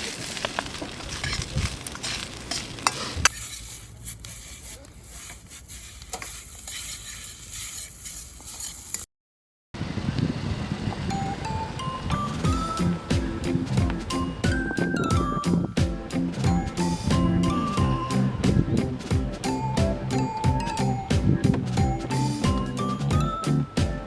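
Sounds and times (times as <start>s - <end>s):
food sizzling in a wok: 1.1s - 9.0s.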